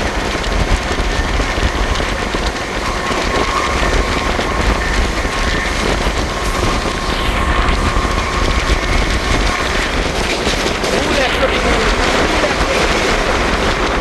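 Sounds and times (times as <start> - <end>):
train wheels rumbling on rails: 0.0 - 14.0
faint high whine: 2.6 - 10.2.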